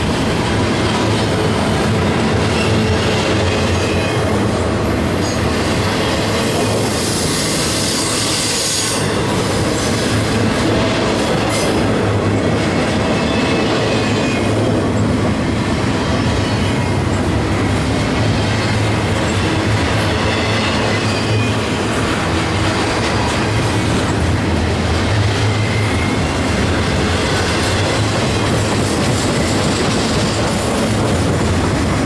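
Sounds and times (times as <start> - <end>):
freight train rolling past: 0.0 - 32.0.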